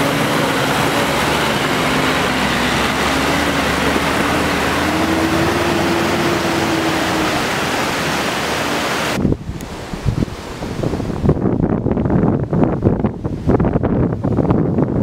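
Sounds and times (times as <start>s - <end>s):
tyre and gravel road noise: 0.0s - 9.8s.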